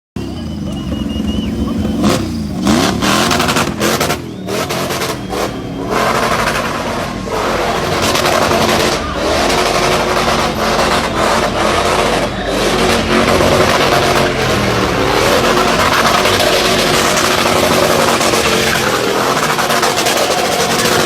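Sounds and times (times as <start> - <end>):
car engine at high revs: 0.2 - 21.0.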